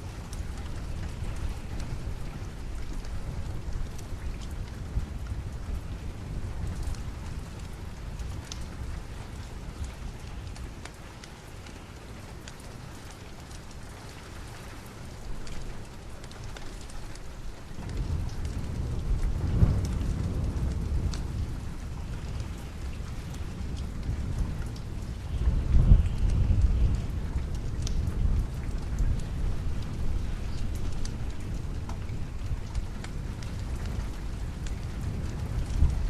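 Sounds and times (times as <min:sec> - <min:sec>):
steady rain: 0:00.0 - 0:36.0
thunder rumbling: 0:17.8 - 0:36.0.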